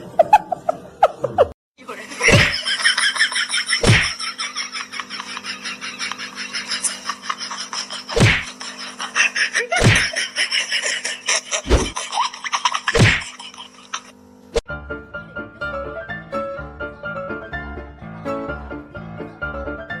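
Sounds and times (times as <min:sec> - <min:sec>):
steady hum: 0:02.1 - 0:14.6.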